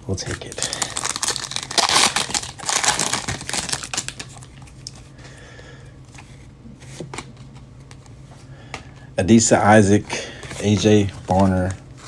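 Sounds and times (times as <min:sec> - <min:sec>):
card pack wrapper crinkling: 0:00.3 - 0:05.0.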